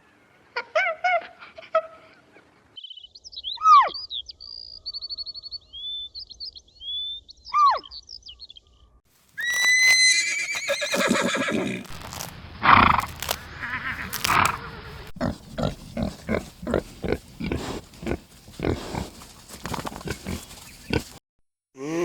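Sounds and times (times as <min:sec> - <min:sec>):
horse whinnying: 0:09.4 - 0:12.0
rough low sounds: 0:11.8 - 0:21.2.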